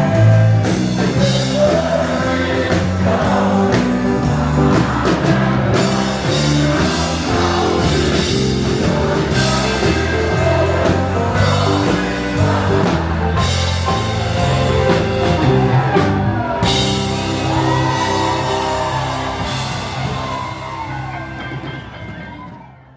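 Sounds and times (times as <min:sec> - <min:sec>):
rock music with singer: 0:00.0 - 0:22.7.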